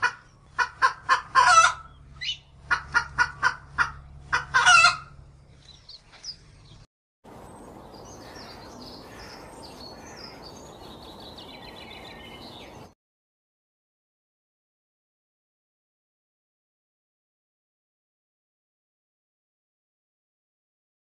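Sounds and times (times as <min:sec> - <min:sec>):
hen clucking: 0:00.0 - 0:05.2
robin chirping and singing: 0:07.4 - 0:12.9.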